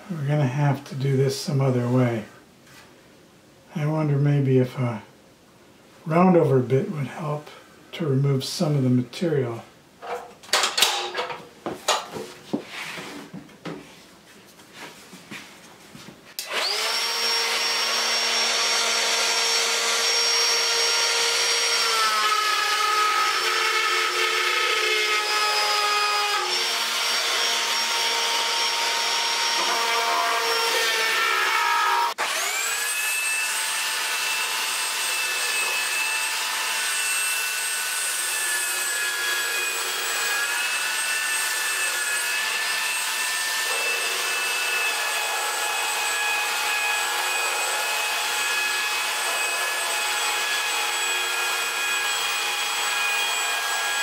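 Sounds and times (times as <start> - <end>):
electric router cutting wood: 16.4 - 54.0.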